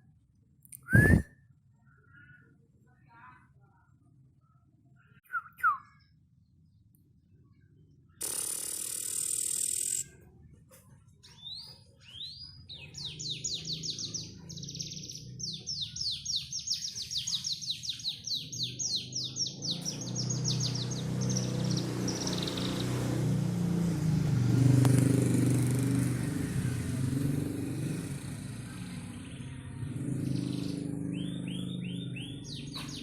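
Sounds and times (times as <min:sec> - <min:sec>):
canary singing trills: 0:11.3 - 0:23.0, 0:30.0 - 0:33.0.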